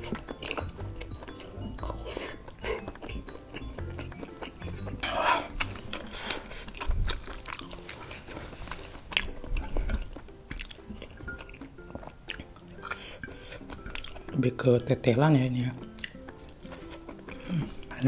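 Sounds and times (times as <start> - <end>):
close chewing: 0.0 - 15.2, 15.8 - 18.0
wet mouth clicks and smacks: 15.9 - 17.4.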